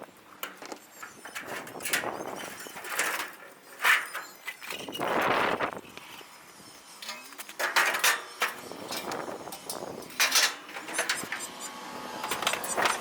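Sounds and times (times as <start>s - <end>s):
metal equipment clanking: 7.0s - 11.6s.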